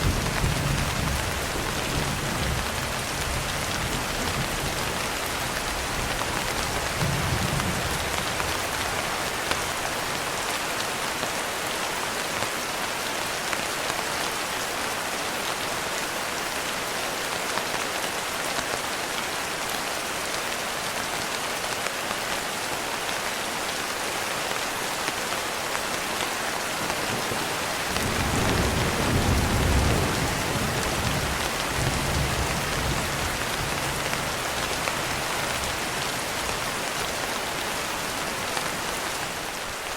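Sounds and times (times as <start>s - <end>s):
heavy rain: 0.0s - 39.9s
thunder rumbling: 27.2s - 34.4s.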